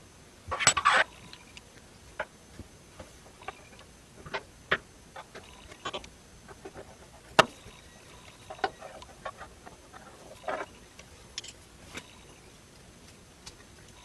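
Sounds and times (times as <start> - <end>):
scrape or rattle: 0.5 - 1.2.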